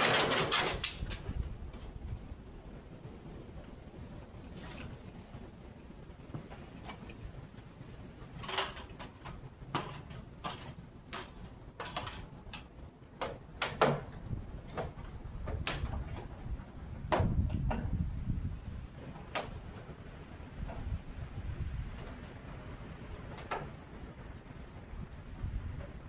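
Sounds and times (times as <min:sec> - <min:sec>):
tools knocking on metal downspout: 0:13.2 - 0:16.3, 0:17.0 - 0:17.9.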